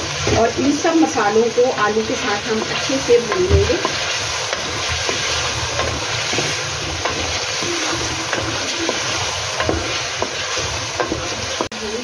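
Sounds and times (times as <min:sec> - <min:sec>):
potatoes sizzling in hot fat: 0:00.0 - 0:12.0
wooden spatula scraping pot: 0:02.5 - 0:11.7.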